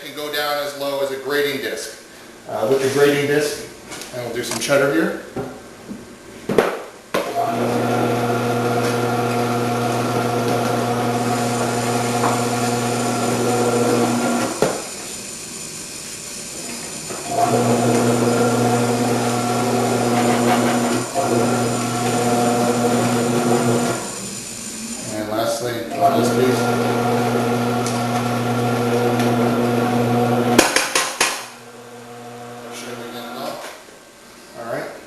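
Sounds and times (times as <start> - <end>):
vegetable cutter motor humming: 7.4 - 25.3, 25.9 - 30.6, 31.7 - 33.1.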